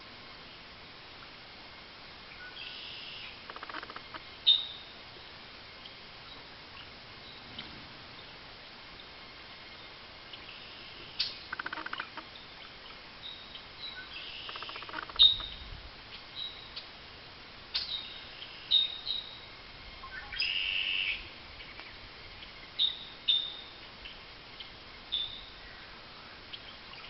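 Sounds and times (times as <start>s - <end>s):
bird high chirps: 11.2s - 16.8s.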